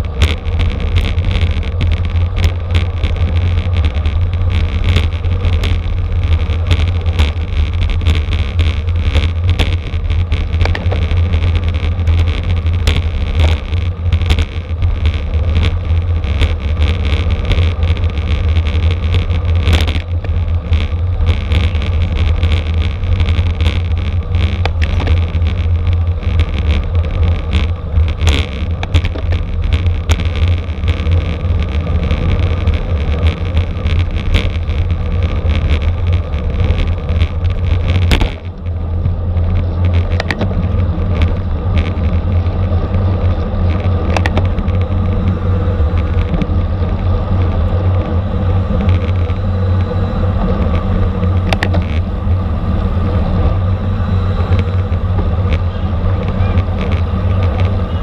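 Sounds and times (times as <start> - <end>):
small clicks and rattles: 0.0 - 53.7, 54.3 - 58.0
wind rumbling on microphone: 0.0 - 58.0.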